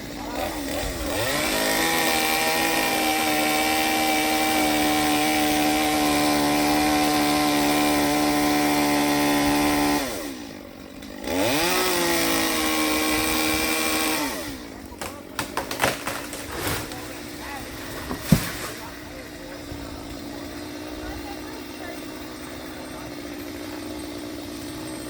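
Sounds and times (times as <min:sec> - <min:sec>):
chainsaw engine revving: 0:00.0 - 0:25.0.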